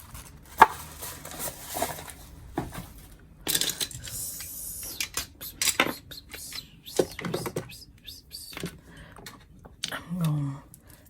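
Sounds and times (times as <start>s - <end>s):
rustling: 0.0s - 3.2s.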